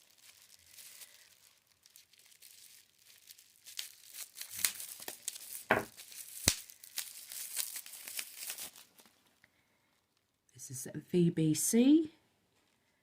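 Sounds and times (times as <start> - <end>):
plastic packaging crinkling and tearing: 0.0 - 9.4.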